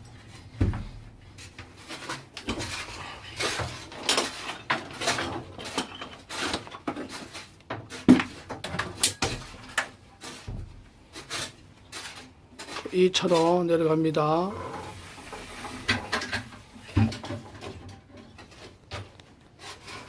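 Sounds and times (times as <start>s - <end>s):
bucket being handled: 14.5s - 18.0s.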